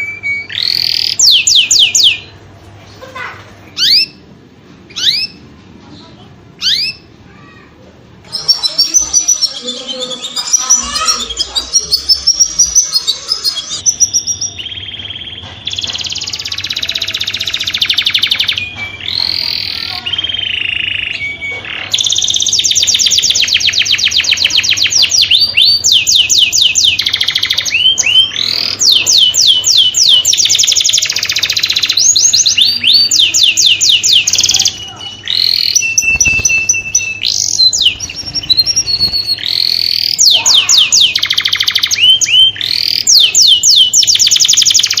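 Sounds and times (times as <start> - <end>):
canary singing trills: 0.0 - 7.6, 8.2 - 45.0.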